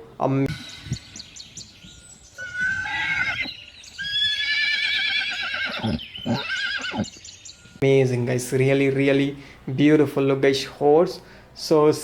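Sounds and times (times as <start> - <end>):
horse whinnying: 2.4 - 7.2.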